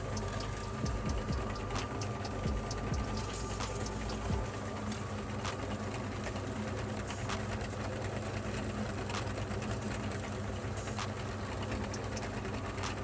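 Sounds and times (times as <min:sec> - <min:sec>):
meat grinder motor humming: 0:00.0 - 0:13.0.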